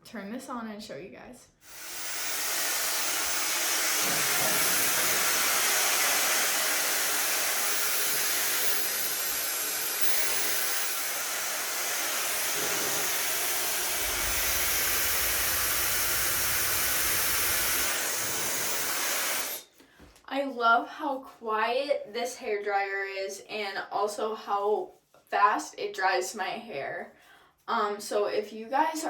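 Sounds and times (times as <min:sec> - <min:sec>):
hair dryer hissing: 0:01.6 - 0:19.6
low rumble: 0:12.6 - 0:17.9.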